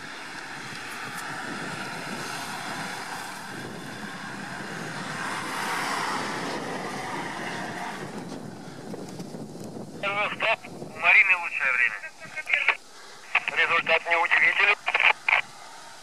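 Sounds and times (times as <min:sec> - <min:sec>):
off-road engine running hard: 0:00.0 - 0:10.5.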